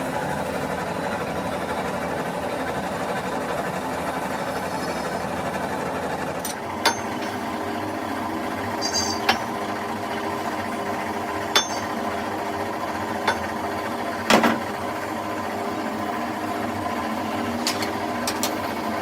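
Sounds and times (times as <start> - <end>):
workshop machine humming: 0.0 - 19.0
sharp metallic knocks: 8.8 - 9.5, 11.5 - 12.0, 13.3 - 13.5.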